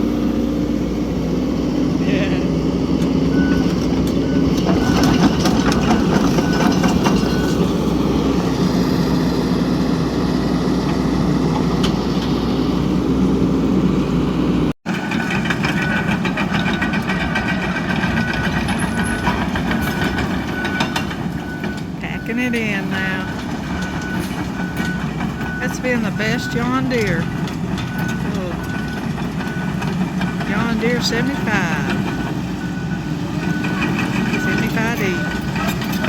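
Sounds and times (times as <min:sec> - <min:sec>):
excavator diesel engine running: 0:00.0 - 0:36.0
machine clanking: 0:04.0 - 0:07.6, 0:14.9 - 0:36.0
short high beeps: 0:33.6 - 0:35.5.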